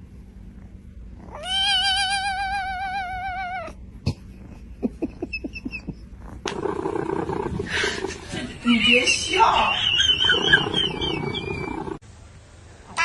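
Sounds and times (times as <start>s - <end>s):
cat meowing: 1.3s - 3.8s.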